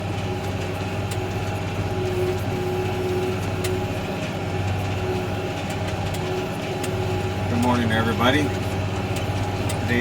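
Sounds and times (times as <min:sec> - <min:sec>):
tractor diesel engine under load: 0:00.0 - 0:10.0
faint clicks and rattles: 0:03.4 - 0:10.0.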